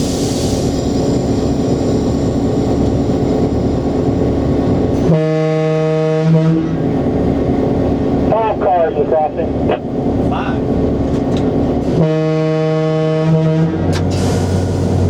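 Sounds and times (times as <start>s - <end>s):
diesel locomotive engine rumble: 0.0s - 15.0s
horn-like pitched tone: 5.0s - 6.8s, 11.9s - 13.9s.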